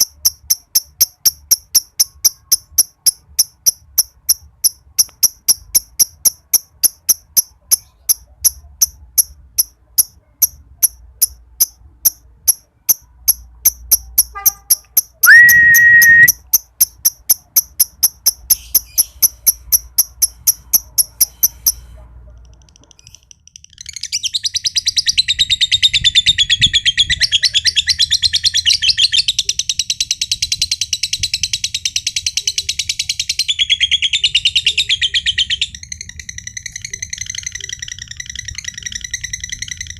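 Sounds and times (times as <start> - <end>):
lovebird chattering trill: 0.0 - 21.9, 22.6 - 39.9
lovebird sharp high ticks: 0.0 - 23.4
lovebird whistle-like note: 15.2 - 16.4.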